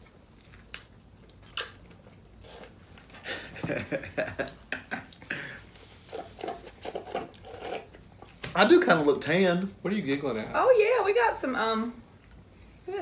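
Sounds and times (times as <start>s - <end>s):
person chewing food: 0.0s - 3.2s
small mouth clicks: 0.6s - 2.8s.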